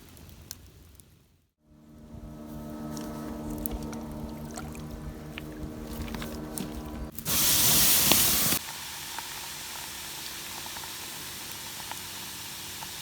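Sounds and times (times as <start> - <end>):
low hum: 1.6 - 8.6
boiling water hissing: 1.7 - 13.0.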